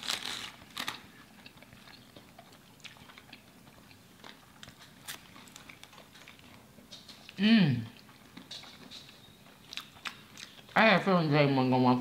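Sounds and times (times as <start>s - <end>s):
biting into sandwich: 0.0s - 7.4s
close chewing: 0.0s - 10.8s.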